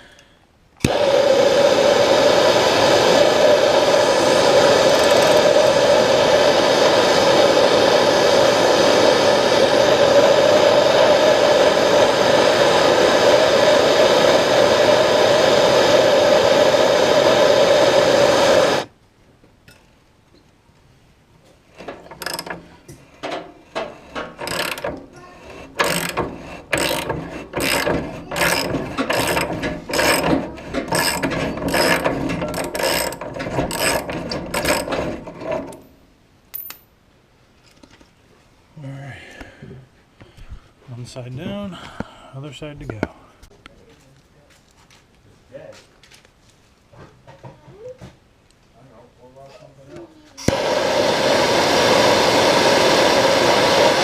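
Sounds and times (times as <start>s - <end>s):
loud blowing noise with hum: 0.8s - 18.9s, 21.7s - 35.9s, 50.4s - 54.0s
ratchet wrench clicking: 22.0s - 22.7s, 24.3s - 25.0s, 25.7s - 34.9s.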